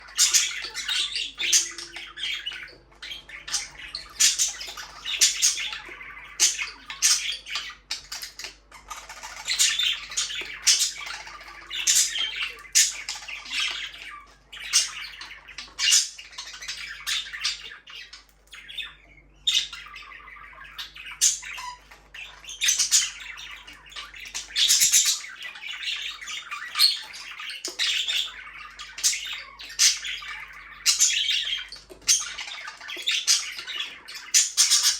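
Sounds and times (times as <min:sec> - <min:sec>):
budgerigars chirping: 0:00.0 - 0:34.9.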